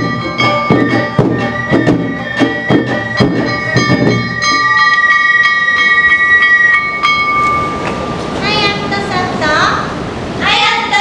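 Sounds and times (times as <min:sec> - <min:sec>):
bamboo flutes: 0:00.0 - 0:07.6
gong strikes: 0:00.0 - 0:08.9
drums beating: 0:00.0 - 0:09.3.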